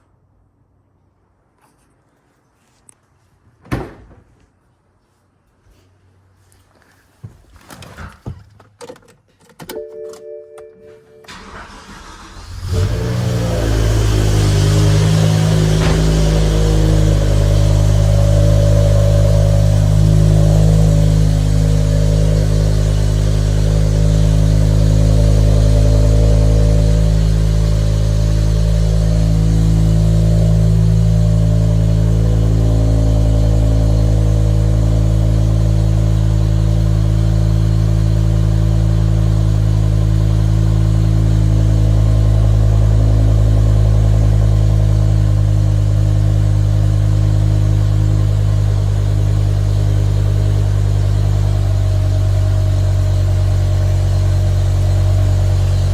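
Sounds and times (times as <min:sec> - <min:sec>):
car engine idling: 0:11.3 - 0:55.9.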